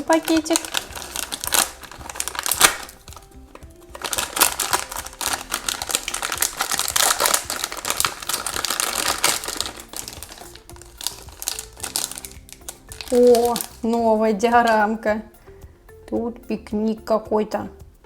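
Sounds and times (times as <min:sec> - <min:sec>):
plastic toy packet rustling: 0:00.0 - 0:14.0
soft background music: 0:00.0 - 0:18.0.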